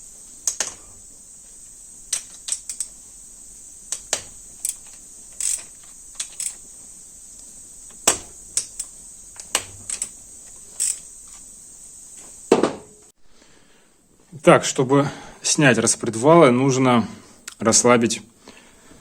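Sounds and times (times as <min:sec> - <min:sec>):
hand tools clicking and knocking: 0:00.4 - 0:01.0, 0:02.1 - 0:03.0, 0:03.9 - 0:06.7, 0:07.4 - 0:11.4.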